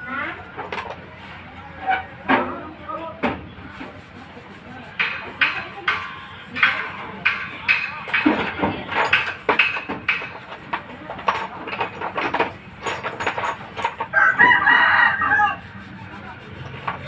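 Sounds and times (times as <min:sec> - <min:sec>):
sharp clicks and knocks: 0:05.0 - 0:14.2
rooster crowing: 0:14.1 - 0:15.8.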